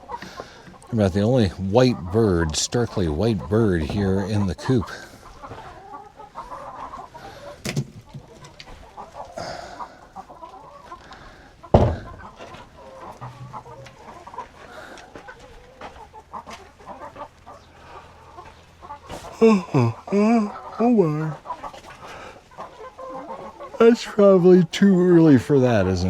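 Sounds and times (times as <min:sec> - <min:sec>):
chickens clucking softly: 0:00.0 - 0:26.0
sharp knock: 0:11.8 - 0:12.1.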